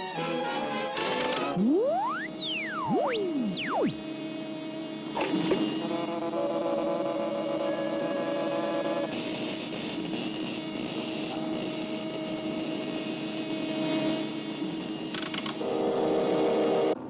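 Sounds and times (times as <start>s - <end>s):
mechanical whirring and humming: 1.2s - 15.7s
held tones: 1.5s - 4.0s.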